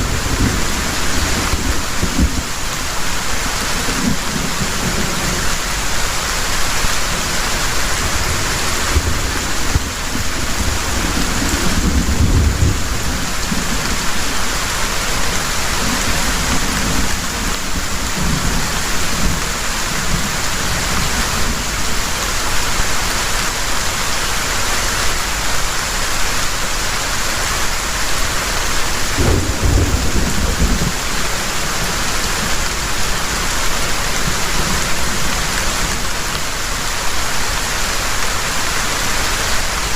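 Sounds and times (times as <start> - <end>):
thunder rolling: 0.0 - 2.6, 29.1 - 32.7
heavy rain: 0.0 - 39.9.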